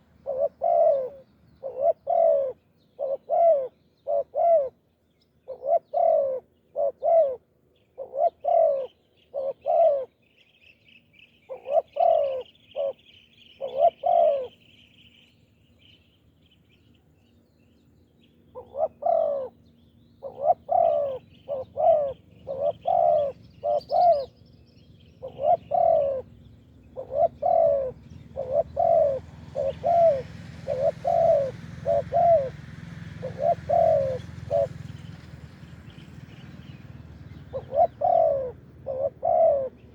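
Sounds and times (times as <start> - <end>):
doves cooing: 0.0 - 4.8, 5.5 - 7.4, 8.0 - 10.1, 11.5 - 14.6, 18.6 - 19.6, 20.2 - 24.4, 25.1 - 35.6, 36.2 - 39.9
small bird twittering: 20.1 - 26.3.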